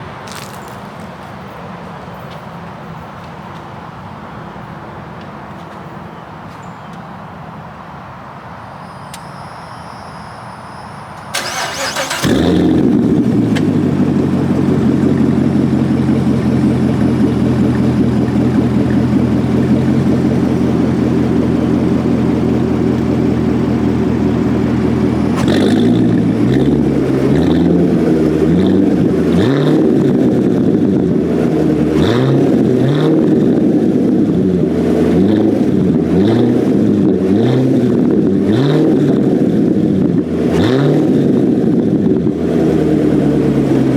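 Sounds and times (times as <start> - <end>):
car engine idling: 11.2 - 29.3
engine starter cranking: 11.3 - 12.8
engine revving in quick blips: 11.3 - 19.2, 24.5 - 30.2.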